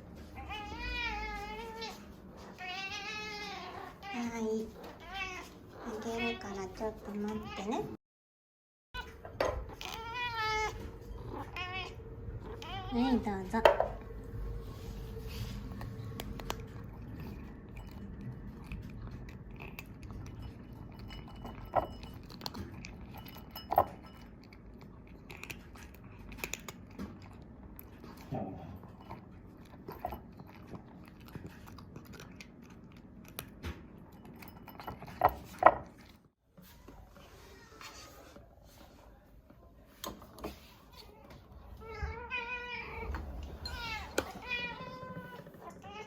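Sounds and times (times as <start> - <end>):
cat crunching kibble: 15.5 - 36.1.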